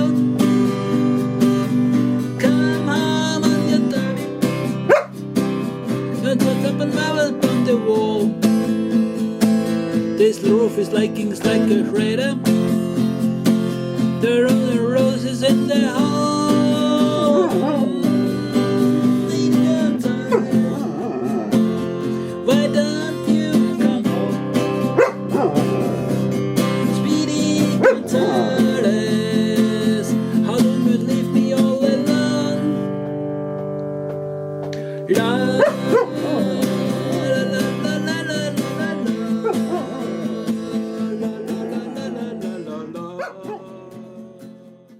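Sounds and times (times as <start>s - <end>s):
strummed acoustic guitar: 0.0s - 44.9s
dog howling: 4.9s - 5.2s, 17.0s - 18.2s, 20.3s - 21.8s, 25.0s - 26.2s, 27.7s - 29.5s, 35.5s - 37.4s, 39.0s - 43.8s.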